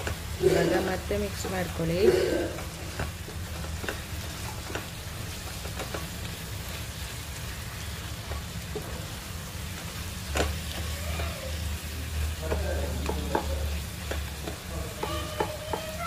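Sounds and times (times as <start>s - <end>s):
spatula scraping and knocking pan: 0.0s - 6.4s, 12.4s - 16.0s
meat sizzling in a pan: 0.0s - 16.0s.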